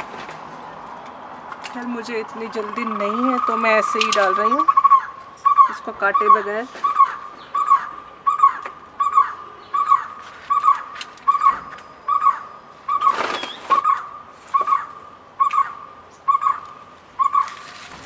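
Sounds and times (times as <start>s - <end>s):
rustling: 17.4s - 18.0s.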